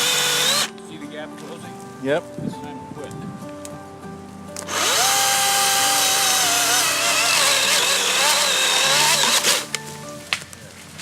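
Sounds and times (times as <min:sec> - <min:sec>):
battery chainsaw cutting wood: 0:00.0 - 0:00.8, 0:04.6 - 0:09.8.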